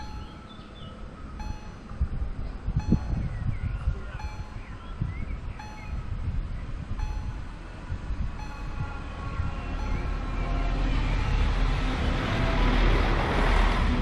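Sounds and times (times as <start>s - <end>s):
level crossing warning bell: 0.0s - 2.1s, 2.8s - 3.4s, 4.0s - 4.9s, 5.6s - 6.1s, 7.0s - 7.7s, 8.3s - 10.5s
diesel train rumbling: 0.0s - 14.0s.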